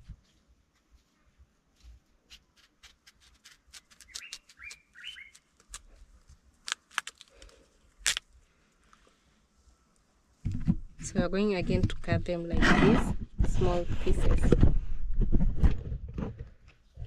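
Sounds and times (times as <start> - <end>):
bird chirping: 3.8 - 5.7.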